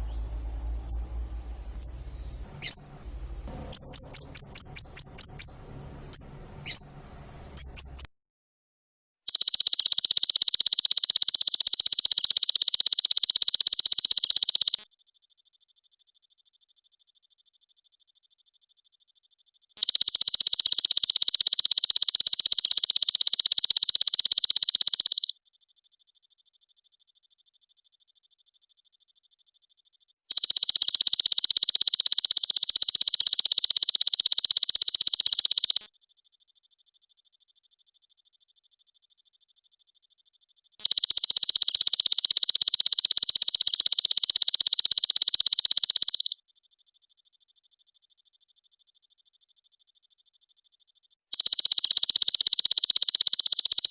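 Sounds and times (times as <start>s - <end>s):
faint pulsed high tone: 0.0s - 8.1s, 30.3s - 35.9s, 40.8s - 46.4s
high rapid pulsed animal trill: 0.0s - 8.1s, 9.3s - 14.8s, 19.8s - 25.4s, 30.3s - 35.9s, 40.8s - 46.4s, 51.3s - 53.9s.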